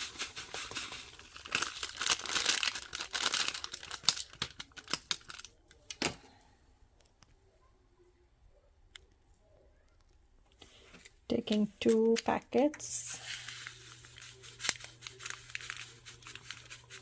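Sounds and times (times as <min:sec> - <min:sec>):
packets crinkling and tearing: 0:00.0 - 0:06.2, 0:13.2 - 0:17.0.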